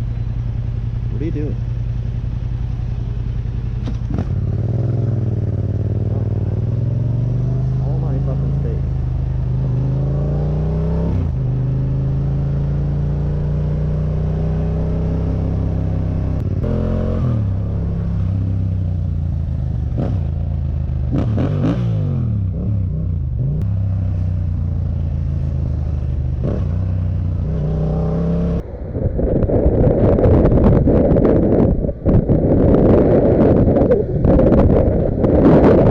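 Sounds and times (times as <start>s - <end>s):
motorcycle engine running: 0.0s - 35.9s
wind buffeting microphone: 27.4s - 35.9s.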